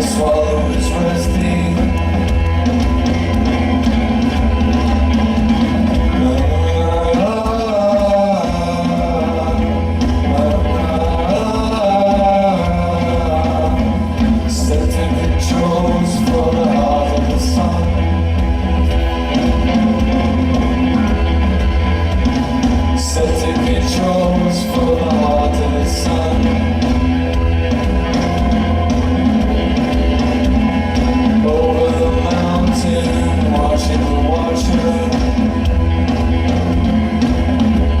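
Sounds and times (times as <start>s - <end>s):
man singing: 0.0s - 2.6s, 5.8s - 18.2s, 22.8s - 27.1s, 30.6s - 35.9s
live rock band playing: 0.0s - 38.0s.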